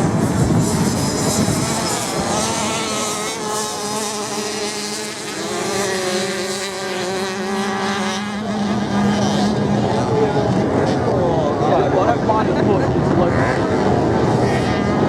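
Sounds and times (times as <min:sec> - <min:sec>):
racing motorcycle engines: 0:00.0 - 0:15.0.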